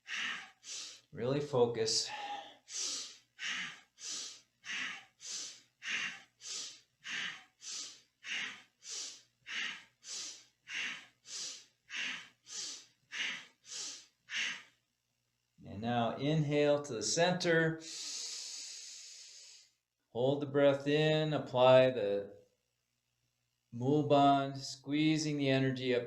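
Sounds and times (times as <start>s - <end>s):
forceful breathing through nose: 0.0s - 1.2s, 2.1s - 14.7s, 17.8s - 19.8s.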